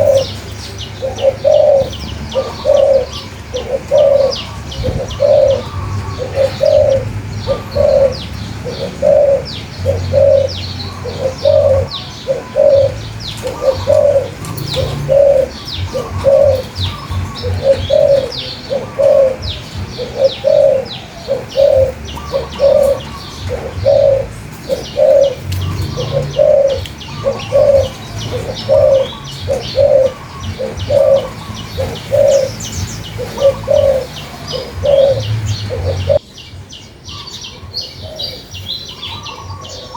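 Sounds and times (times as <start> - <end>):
dove cooing: 0.0 - 36.2, 37.1 - 39.9
small birds chirping: 0.0 - 39.9.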